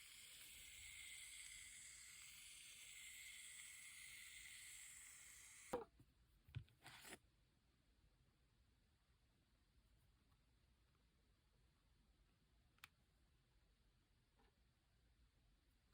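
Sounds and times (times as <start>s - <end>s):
aerosol can spraying hiss: 0.0s - 5.8s.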